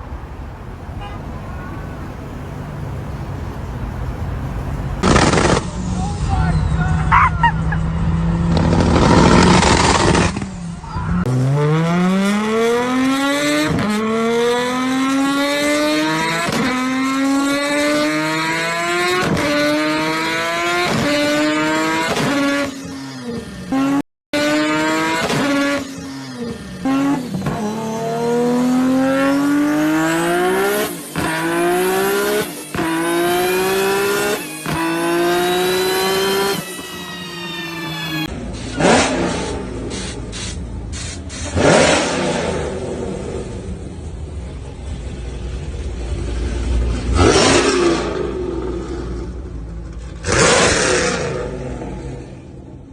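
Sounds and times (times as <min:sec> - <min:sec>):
engine revving through gears: 0:00.0 - 0:05.8, 0:08.0 - 0:10.6, 0:11.2 - 0:22.8, 0:23.7 - 0:36.8, 0:37.9 - 0:43.9, 0:46.0 - 0:52.8
loud noisy rushing: 0:00.0 - 0:06.6.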